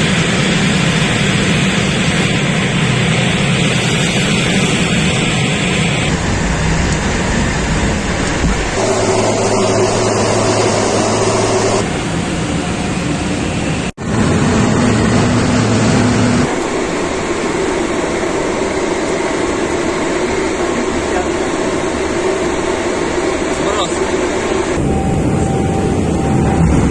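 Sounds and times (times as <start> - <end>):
aircraft engines droning: 0.0 - 26.9.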